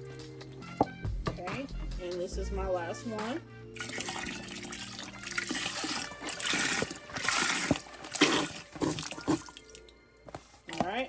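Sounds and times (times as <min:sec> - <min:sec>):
broth pouring into a pot: 0:03.8 - 0:09.9.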